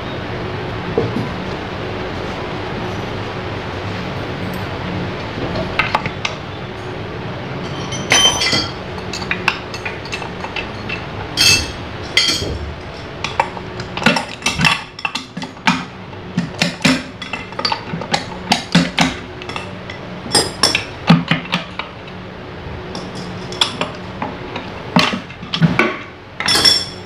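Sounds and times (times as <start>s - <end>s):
steady low hum: 0.0s - 27.0s
metal tools clinking: 7.6s - 13.4s, 26.4s - 27.0s.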